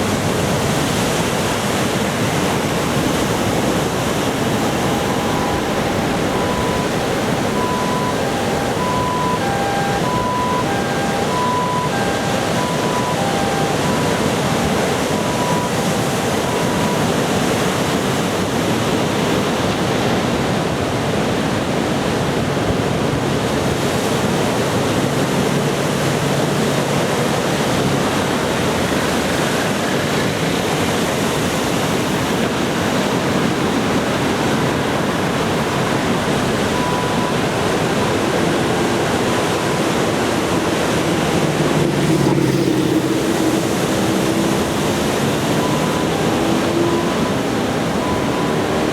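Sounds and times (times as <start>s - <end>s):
ocean surf breaking: 0.0s - 48.9s
electronic two-tone ding: 4.5s - 15.8s.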